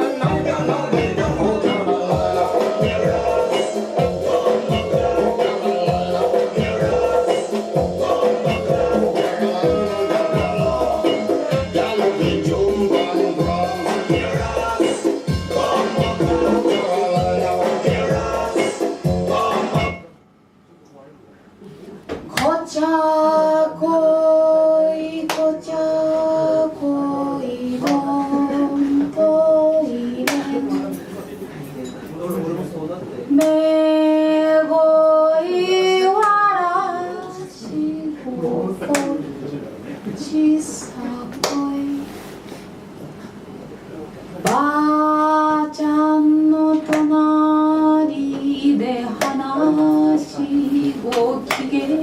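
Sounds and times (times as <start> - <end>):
group singing long notes: 0.0 - 20.1, 44.4 - 52.0.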